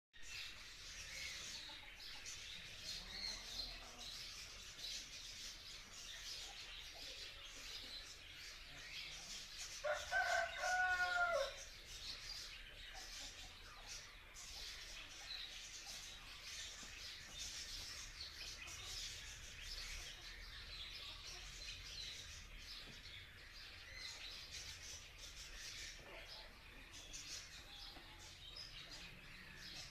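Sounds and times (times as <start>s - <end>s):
small birds chirping: 0.2s - 29.9s
rooster crowing: 9.8s - 11.6s.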